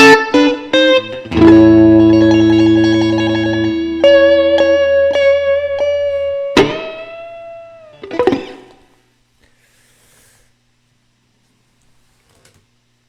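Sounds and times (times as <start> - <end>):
electric guitar playing blues: 0.0 - 8.8.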